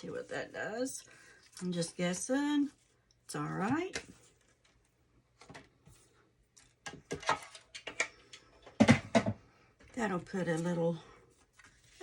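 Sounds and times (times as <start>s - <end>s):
paper rustling: 11.4s - 12.0s.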